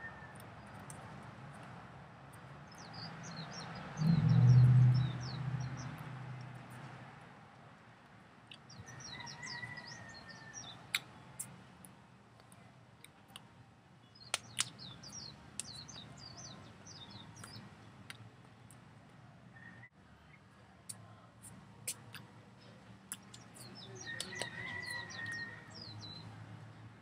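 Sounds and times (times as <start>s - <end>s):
small birds chirping: 2.3s - 6.1s, 14.0s - 18.9s, 21.4s - 26.3s.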